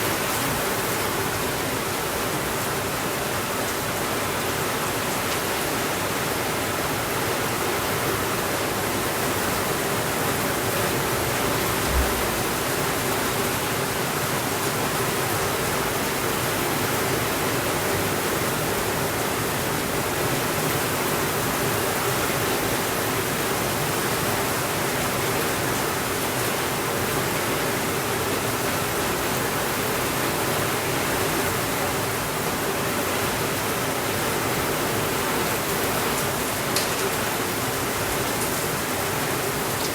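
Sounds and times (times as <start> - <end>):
steady rainfall: 0.0 - 39.9
low thump: 11.8 - 12.7.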